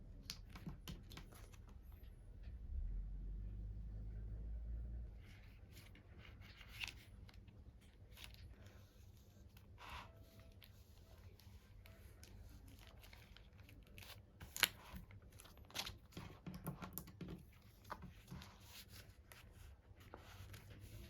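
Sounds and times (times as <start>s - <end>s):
packaging crinkling and tearing: 11.8s - 16.2s.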